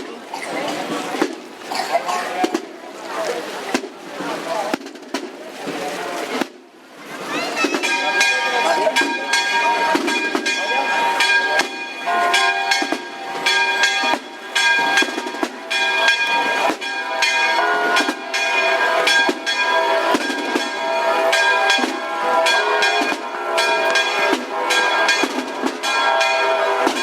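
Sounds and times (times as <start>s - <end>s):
church bells pealing: 7.6s - 27.0s.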